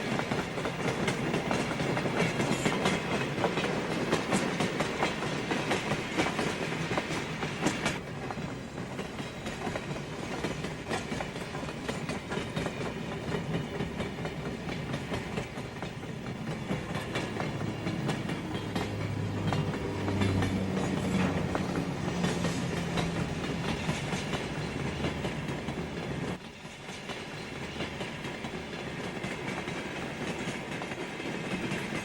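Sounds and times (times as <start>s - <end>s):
train wheels clicking over rail joints: 0.0s - 32.0s.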